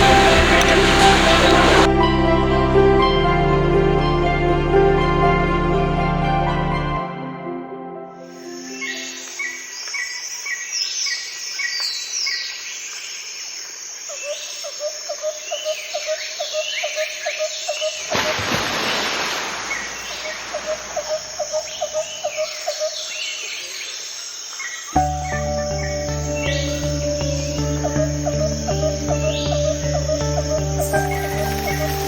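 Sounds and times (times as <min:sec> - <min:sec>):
birds chirping: 0:00.0 - 0:01.9, 0:15.4 - 0:32.0.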